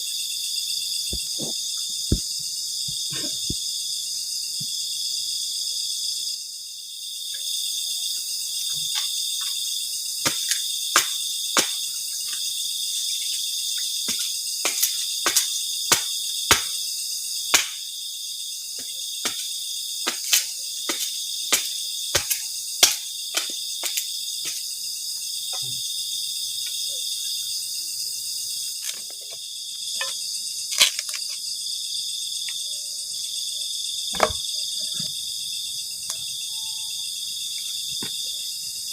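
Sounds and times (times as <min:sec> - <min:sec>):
shrill chorus of night insects: 0:00.0 - 0:38.9.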